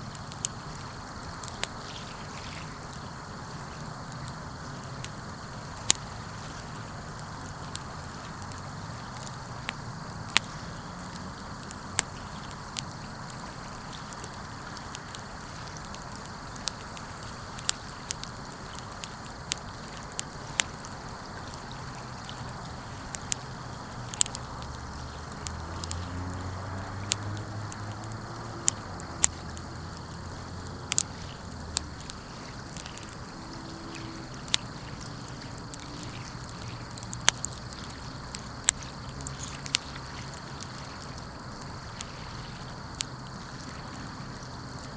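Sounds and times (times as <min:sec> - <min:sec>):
wood fire crackling: 0:02.9 - 0:40.6.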